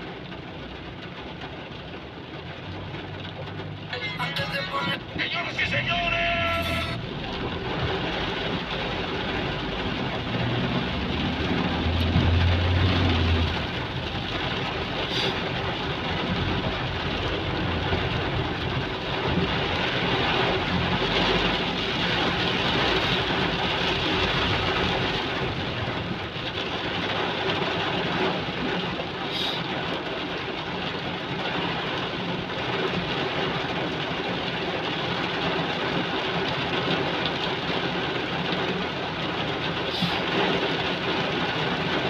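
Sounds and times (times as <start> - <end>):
heavy rain hissing: 4.0 - 18.4, 29.1 - 30.0, 39.7 - 41.1.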